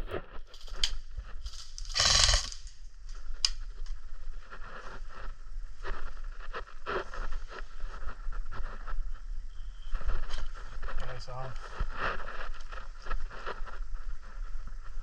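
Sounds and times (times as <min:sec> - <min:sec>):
gear rustling and clicking: 0:00.5 - 0:02.7.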